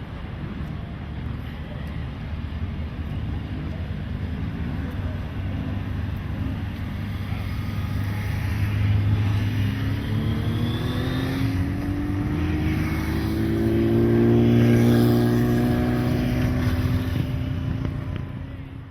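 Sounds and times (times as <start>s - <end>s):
racing motorcycle engine accelerating: 7.0s - 18.7s.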